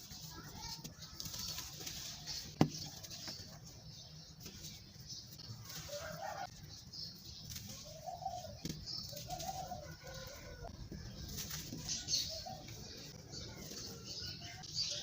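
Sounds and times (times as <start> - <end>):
doves cooing: 7.8 - 14.6.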